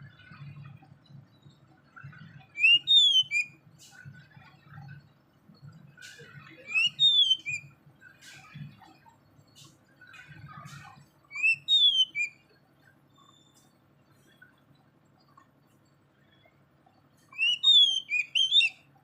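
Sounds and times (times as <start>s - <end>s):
small bird chirping: 2.4s - 3.6s, 6.0s - 8.7s, 9.3s - 19.0s.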